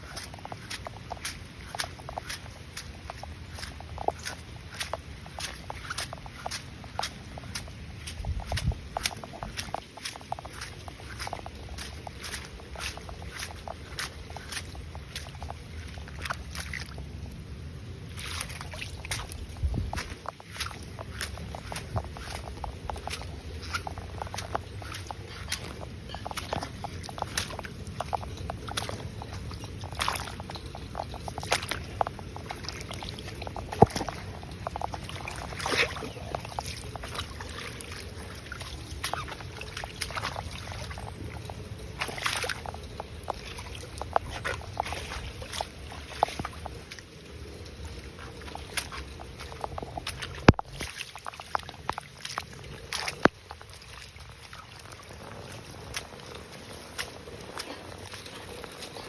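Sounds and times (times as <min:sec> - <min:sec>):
floodwater sloshing and splashing: 0:00.0 - 0:59.0
sharp splashes or knocks: 0:18.1 - 0:41.3.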